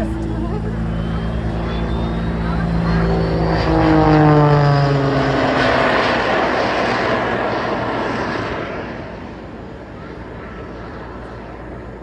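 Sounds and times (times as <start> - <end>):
propeller plane engine passing: 0.0 - 12.0
rushing jet noise: 0.0 - 12.0.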